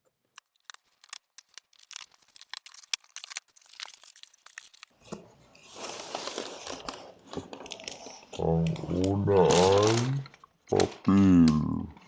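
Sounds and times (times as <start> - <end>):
packaging tearing and crinkling: 0.3 - 5.0, 5.7 - 10.3.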